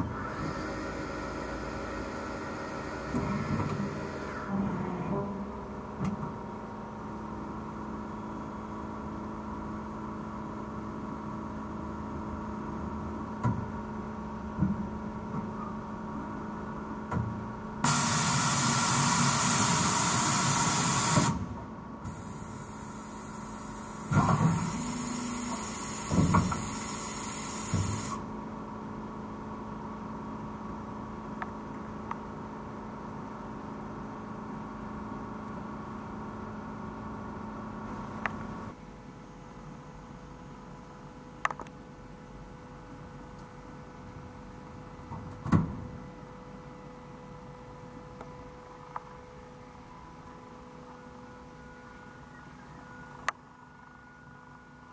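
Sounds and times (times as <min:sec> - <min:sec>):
machining centre humming: 0:00.0 - 0:13.4
loud hiss: 0:17.8 - 0:21.4, 0:22.1 - 0:28.2.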